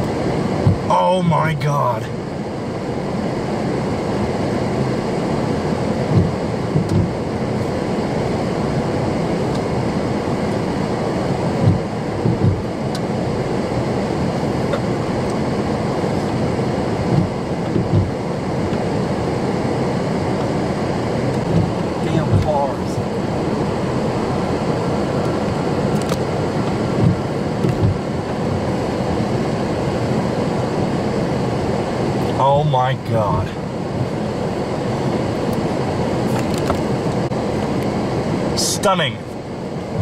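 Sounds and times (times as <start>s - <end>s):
low buffeting thump: 0.6s - 0.9s, 6.0s - 7.2s, 11.6s - 12.7s, 17.0s - 18.8s, 21.4s - 22.5s, 26.7s - 28.3s.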